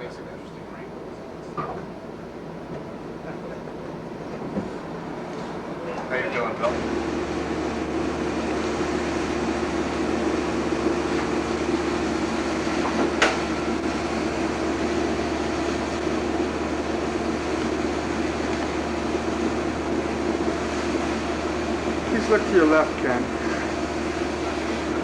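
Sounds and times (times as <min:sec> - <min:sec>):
mechanical hum and whir: 0:00.0 - 0:25.0.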